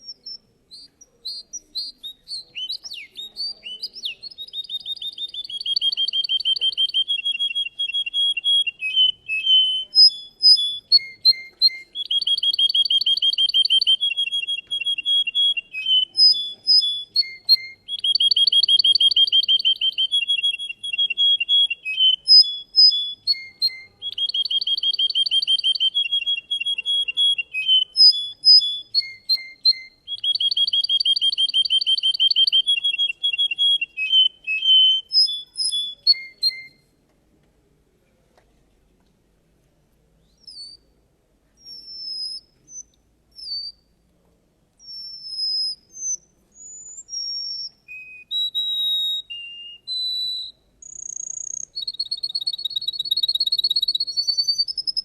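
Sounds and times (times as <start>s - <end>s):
canary singing trills: 0.0s - 36.8s, 41.6s - 43.9s, 44.8s - 55.0s.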